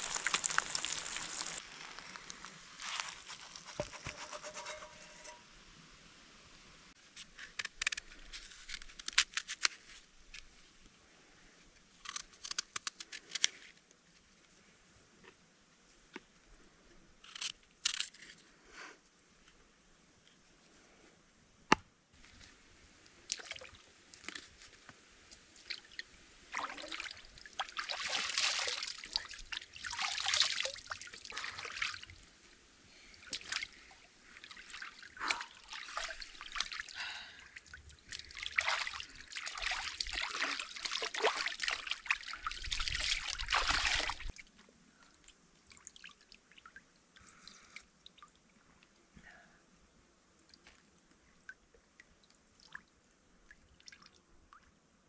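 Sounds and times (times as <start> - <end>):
water trickling and sloshing: 22.2 - 48.9.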